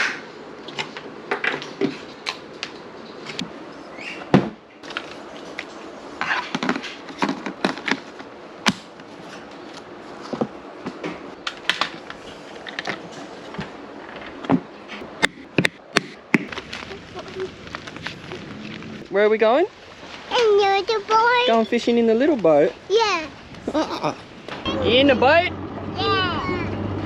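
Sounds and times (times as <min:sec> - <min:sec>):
objects knocking and clattering: 0:06.2 - 0:08.3.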